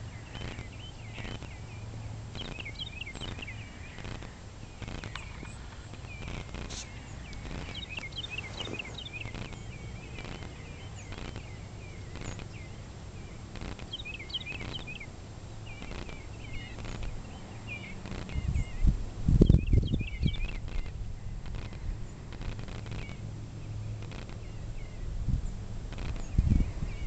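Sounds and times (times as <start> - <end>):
low outdoor rumble: 0.0 - 27.0
small songbirds chirping: 0.0 - 27.0
faint clicks or pops: 2.4 - 11.5, 15.7 - 16.2, 20.4 - 23.2, 24.0 - 24.5, 25.9 - 26.4.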